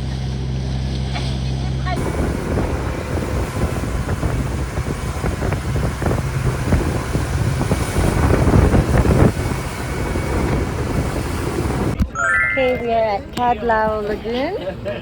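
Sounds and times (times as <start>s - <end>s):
boat engine running: 0.0s - 12.0s
wind buffeting microphone: 2.0s - 12.0s.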